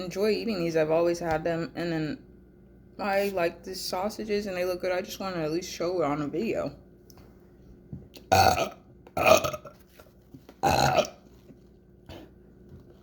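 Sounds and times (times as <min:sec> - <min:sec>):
person burping: 0:08.2 - 0:09.8, 0:10.6 - 0:11.2.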